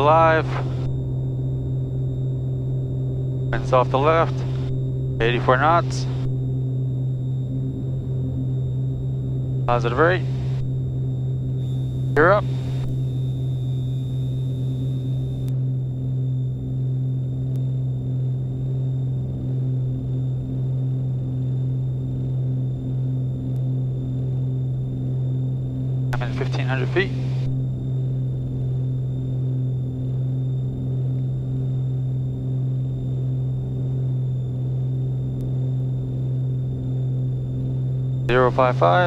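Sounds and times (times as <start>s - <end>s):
aircraft cabin engine drone: 0.0s - 39.0s.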